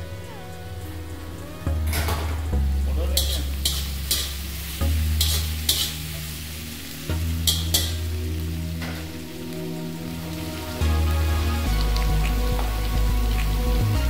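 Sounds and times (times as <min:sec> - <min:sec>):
vegetables sizzling in a wok: 0:02.5 - 0:14.0
spatula scraping a pan: 0:05.2 - 0:06.1.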